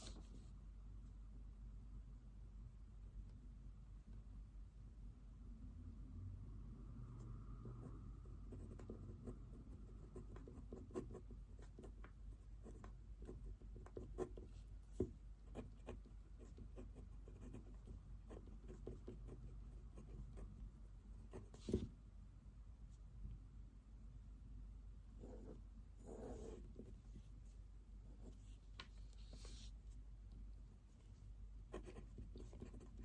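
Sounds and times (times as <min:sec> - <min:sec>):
pen scratching on paper: 0:07.7 - 0:21.9, 0:25.2 - 0:27.3, 0:31.7 - 0:33.0.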